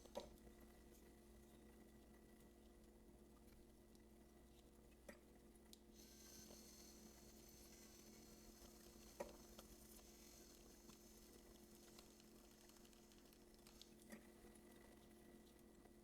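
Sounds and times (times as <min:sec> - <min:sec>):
faint steady hum: 0:00.0 - 0:16.0
faint high whine: 0:06.0 - 0:13.8.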